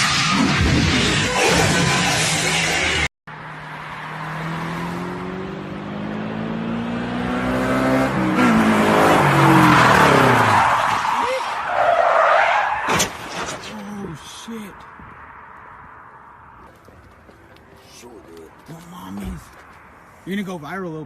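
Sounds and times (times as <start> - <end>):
tyres skidding and squealing: 0.0 - 6.8, 7.4 - 21.0
car engine revving: 0.0 - 11.0.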